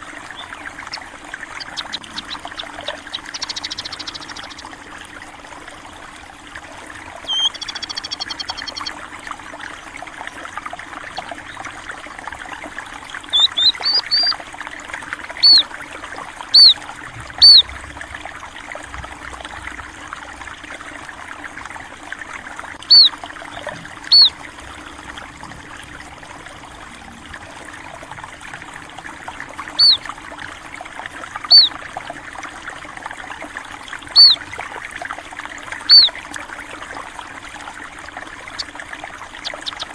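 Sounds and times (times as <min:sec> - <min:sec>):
water trickling: 0:00.0 - 0:39.9
buzzy bird trill: 0:00.3 - 0:04.7, 0:07.2 - 0:08.9, 0:13.1 - 0:14.4, 0:15.4 - 0:15.7, 0:16.5 - 0:17.8, 0:22.8 - 0:25.0, 0:29.8 - 0:30.0, 0:31.5 - 0:31.8, 0:34.1 - 0:34.4, 0:35.9 - 0:36.2, 0:39.3 - 0:39.9
sparrows chirping: 0:00.3 - 0:04.7, 0:07.2 - 0:08.9, 0:13.2 - 0:14.4, 0:15.4 - 0:15.7, 0:16.5 - 0:17.8, 0:22.8 - 0:24.4, 0:29.8 - 0:30.0, 0:31.5 - 0:31.8, 0:34.1 - 0:34.4, 0:35.9 - 0:36.1, 0:39.3 - 0:39.9.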